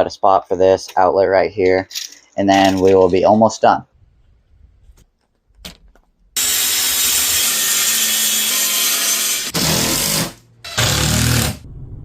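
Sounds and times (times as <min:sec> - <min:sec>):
power saw cutting plywood: 0:06.4 - 0:11.6.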